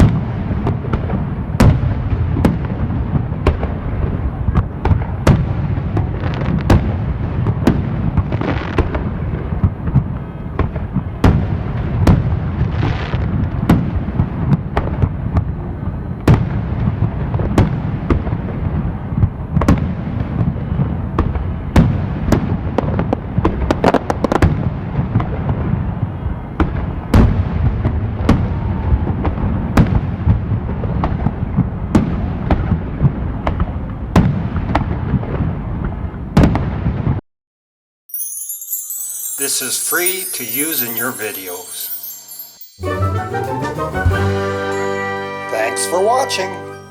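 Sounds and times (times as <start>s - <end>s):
crackling fireworks: 0.0s - 37.2s, 39.1s - 46.4s
fireworks bangs: 0.0s - 37.2s.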